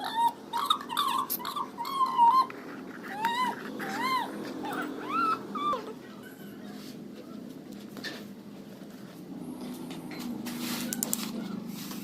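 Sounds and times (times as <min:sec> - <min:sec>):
dog whining: 0:00.0 - 0:06.8.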